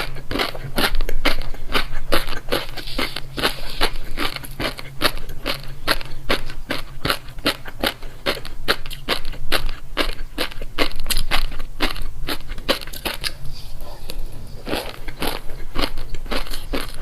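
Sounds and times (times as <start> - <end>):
chewing crunchy food: 0.0 - 17.0.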